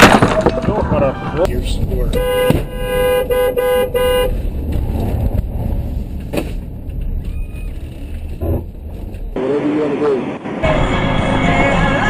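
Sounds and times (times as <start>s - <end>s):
engine and road noise: 0.0s - 12.0s
car horn honking: 2.1s - 4.4s.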